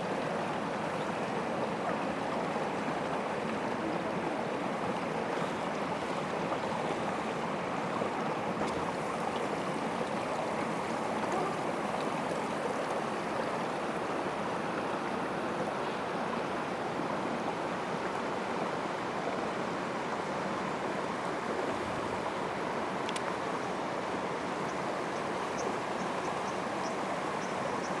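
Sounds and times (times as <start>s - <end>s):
faint click: 23.0s - 23.4s.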